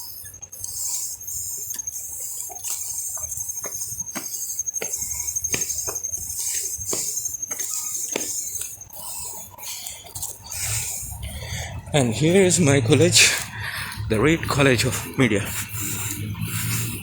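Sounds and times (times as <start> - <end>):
high insect trill: 0.0 - 17.0
footsteps walking: 3.2 - 8.8.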